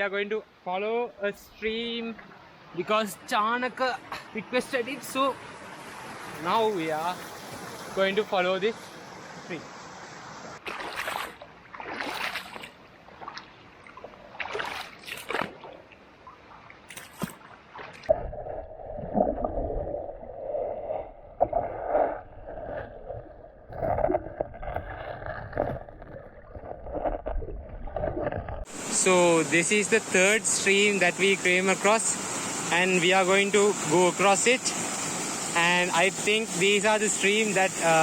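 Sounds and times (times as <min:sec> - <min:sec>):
water splashing from wading: 0:10.6 - 0:29.2.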